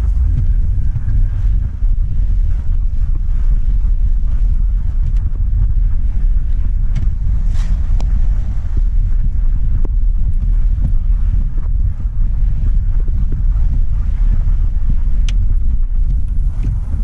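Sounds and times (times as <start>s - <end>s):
car driving on wet road: 0.0s - 5.5s
faint light ticks: 5.0s - 5.4s, 15.0s - 17.0s.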